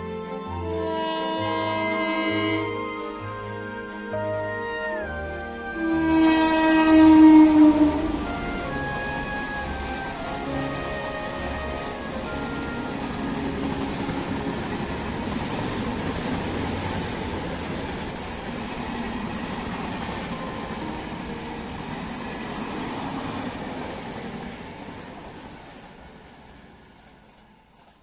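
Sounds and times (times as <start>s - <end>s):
train wheels rumbling on rails: 5.7s - 28.0s.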